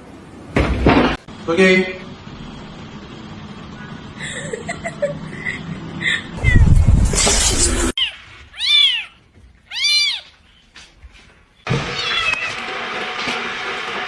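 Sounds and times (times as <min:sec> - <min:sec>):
cat meowing: 0:08.0 - 0:10.4, 0:11.9 - 0:12.6.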